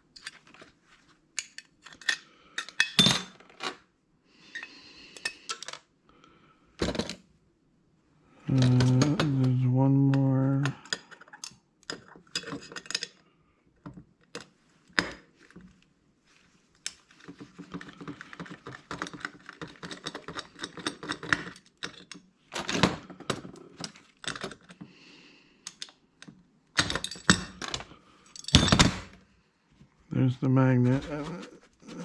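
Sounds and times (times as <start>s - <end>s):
hand tools clicking on metal parts: 17.7s - 22.2s.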